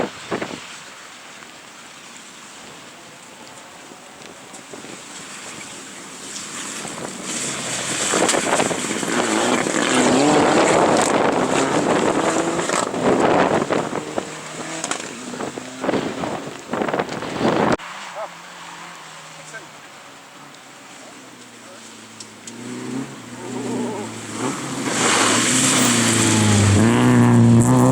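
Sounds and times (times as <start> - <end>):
rally car engine accelerating: 3.8 - 27.9.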